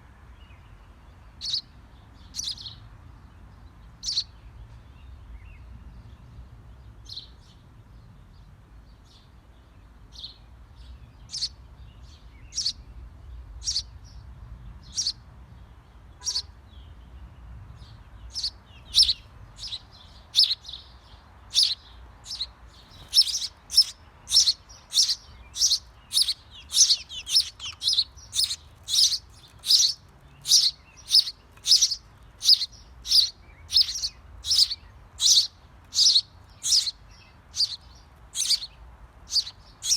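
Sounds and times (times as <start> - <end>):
small bird chirping: 1.4 - 2.8, 4.0 - 4.4, 10.1 - 15.2, 16.2 - 17.0, 17.7 - 39.9.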